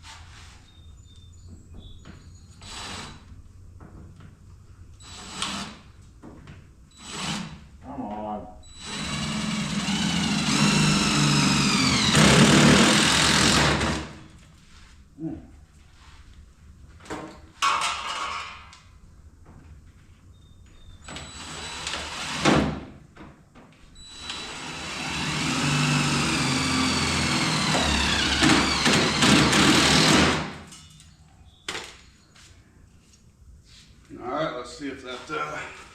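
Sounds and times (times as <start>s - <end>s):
power drill drilling sheet metal: 5.0s - 5.8s, 7.0s - 7.6s, 8.7s - 14.2s, 21.1s - 22.6s, 24.0s - 30.6s.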